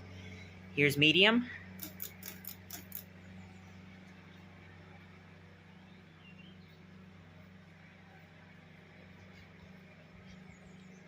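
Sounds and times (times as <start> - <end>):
ceiling fan humming: 0.0 - 11.0
pull chain clicking: 1.8 - 3.1.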